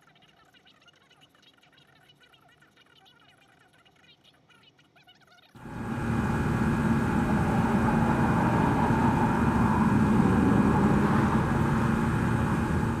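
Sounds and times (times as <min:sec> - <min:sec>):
engine drone: 0:05.6 - 0:13.0.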